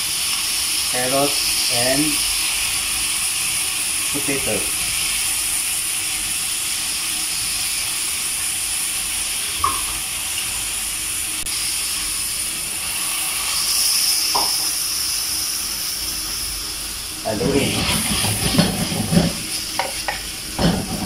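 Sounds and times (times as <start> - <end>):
food sizzling in a wok: 0.0 - 21.0
water pouring: 17.3 - 19.8.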